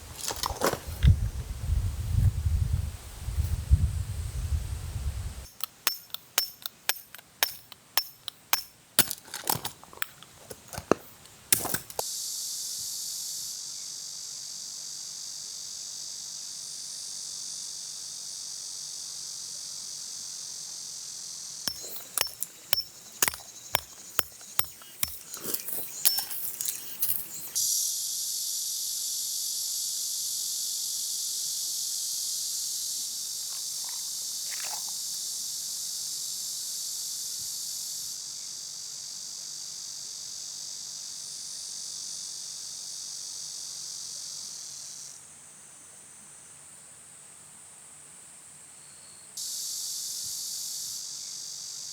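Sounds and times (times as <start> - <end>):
sharp clicks and knocks: 5.5 - 12.0, 21.7 - 27.6
high-pitched insect chorus: 10.0 - 45.8, 48.8 - 51.9.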